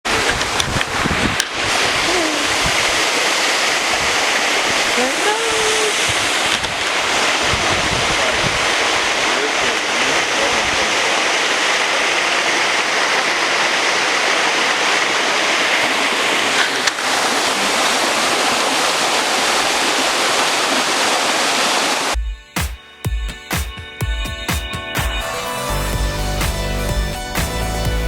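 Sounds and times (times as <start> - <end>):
flowing water rushing: 0.0 - 22.2
electronic music with heavy bass: 22.2 - 28.0.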